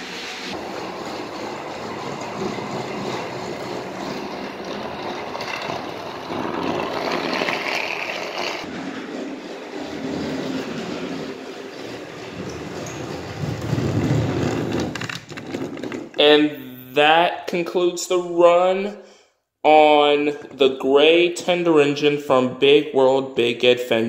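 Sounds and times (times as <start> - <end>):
toy train wheels rolling: 0.2 - 16.2
toy train motor whirring: 0.3 - 10.9.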